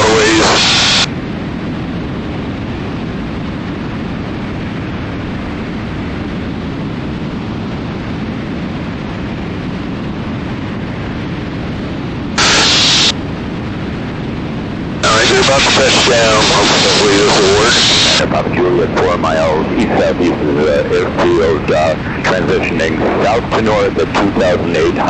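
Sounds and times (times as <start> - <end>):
aircraft engine noise: 0.0 - 25.0
airflow rush: 11.8 - 25.0.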